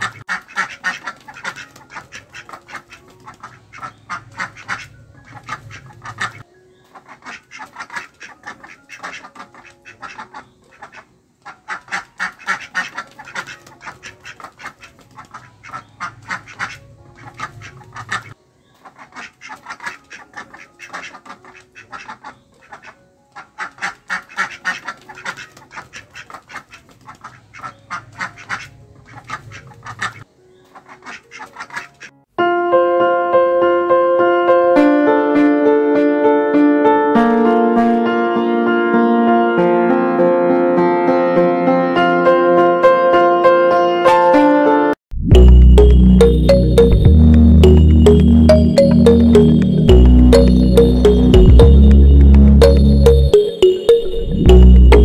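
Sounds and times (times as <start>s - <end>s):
ducks quacking: 0.0s - 32.2s
piano music: 32.3s - 55.0s.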